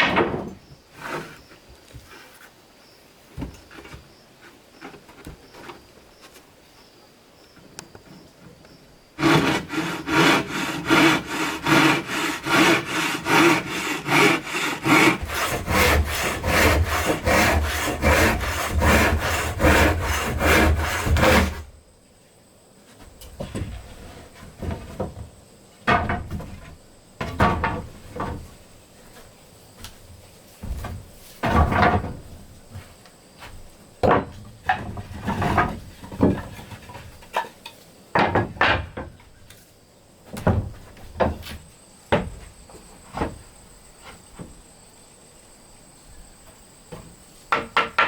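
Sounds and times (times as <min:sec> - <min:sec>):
hand saw cutting wood: 0:09.2 - 0:21.7
wood knocking: 0:27.2 - 0:28.5, 0:34.0 - 0:37.5, 0:46.9 - 0:48.0.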